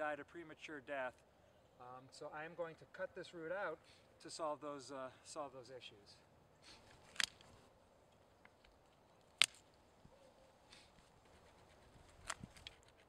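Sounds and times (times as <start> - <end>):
root snapping as it is cut: 6.9 - 7.5, 9.2 - 9.7
small clicks: 6.9 - 9.8.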